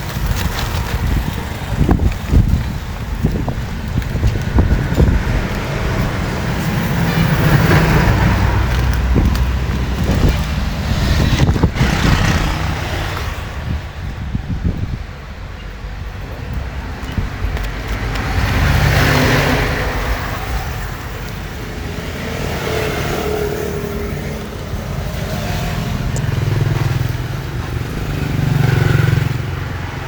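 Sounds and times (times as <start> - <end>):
low traffic rumble: 0.0 - 30.0
vehicle engines passing: 0.0 - 30.0.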